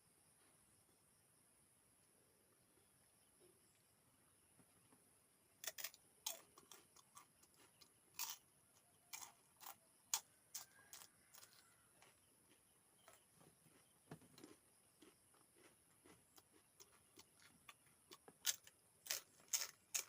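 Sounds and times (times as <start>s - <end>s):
chewing crisp food: 5.6s - 20.0s.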